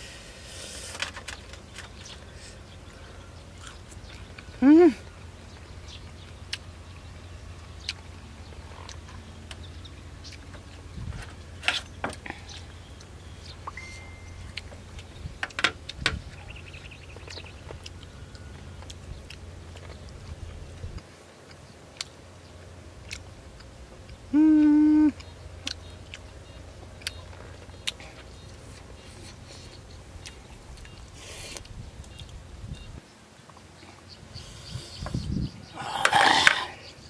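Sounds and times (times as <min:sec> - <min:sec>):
steady low hum: 0:00.0 - 0:37.0
chewing and mouth sounds: 0:05.5 - 0:10.8, 0:14.4 - 0:32.4.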